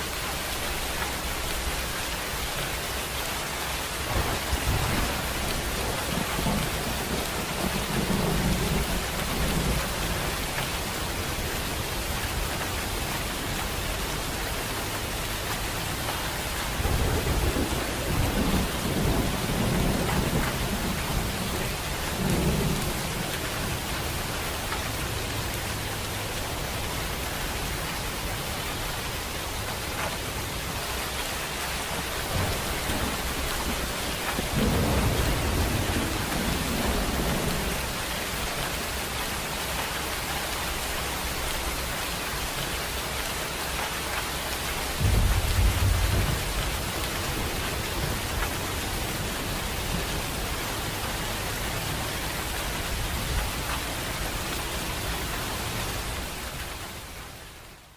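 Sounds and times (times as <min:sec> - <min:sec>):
steady rain: 0:00.0 - 0:57.9
rolling thunder: 0:04.0 - 0:10.6, 0:16.8 - 0:23.9, 0:32.1 - 0:38.0, 0:44.9 - 0:50.6.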